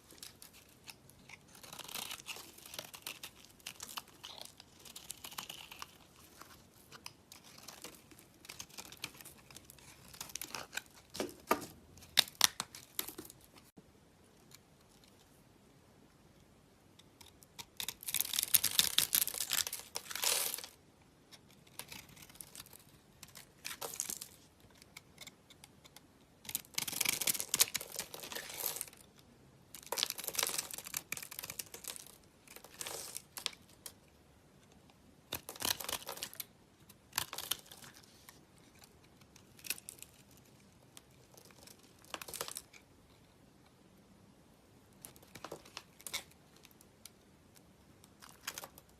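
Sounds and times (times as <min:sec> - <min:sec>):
soap crackling and crumbling: 0:00.0 - 0:13.8, 0:17.0 - 0:43.7, 0:44.8 - 0:48.9.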